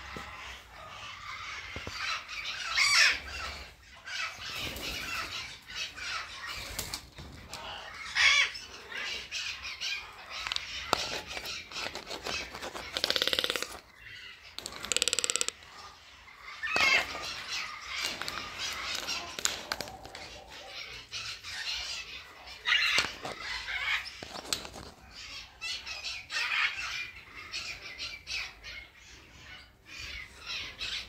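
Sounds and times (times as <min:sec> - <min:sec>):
birds squawking: 0:00.0 - 0:31.0
buzzy rattling bird call: 0:10.5 - 0:13.9, 0:14.6 - 0:15.8.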